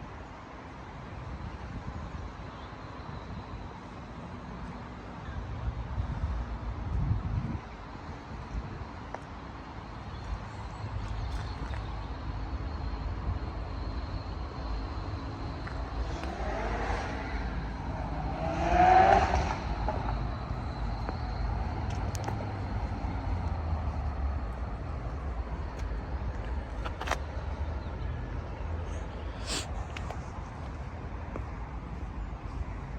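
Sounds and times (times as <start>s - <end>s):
road traffic rumble: 0.0s - 32.9s
car passing by: 16.0s - 24.4s.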